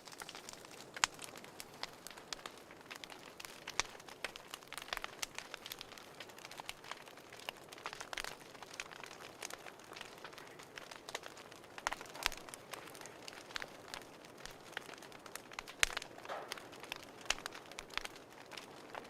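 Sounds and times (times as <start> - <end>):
fireplace fire crackling: 0.0 - 19.0.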